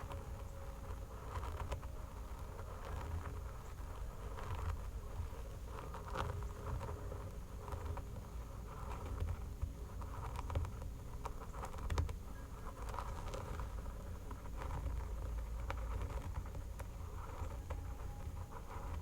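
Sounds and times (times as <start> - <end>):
fingernails scratching hair and skin: 0.0 - 19.0.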